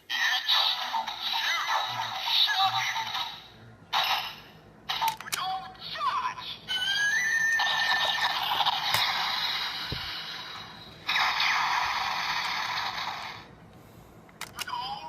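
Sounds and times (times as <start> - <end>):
toy gun electronic firing effects: 7.5 - 10.0, 11.1 - 13.5.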